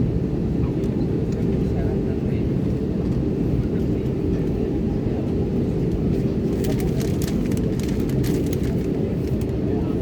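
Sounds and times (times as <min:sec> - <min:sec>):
airliner cabin engine drone: 0:00.0 - 0:10.0.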